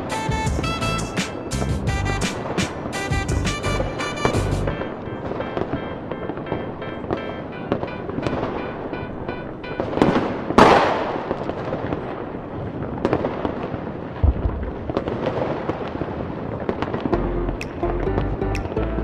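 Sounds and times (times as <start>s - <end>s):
music playing: 0.0s - 10.2s, 17.2s - 19.0s
fireworks bangs and crackling: 9.8s - 17.1s.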